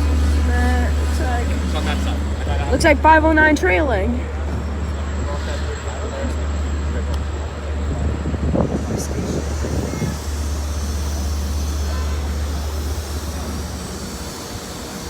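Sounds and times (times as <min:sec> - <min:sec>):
diesel locomotive humming: 0:00.0 - 0:15.0.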